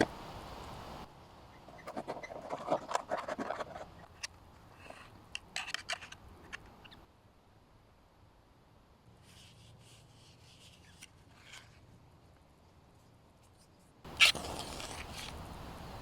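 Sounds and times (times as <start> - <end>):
light clicks and scrapes: 1.7 - 6.8, 9.2 - 15.4.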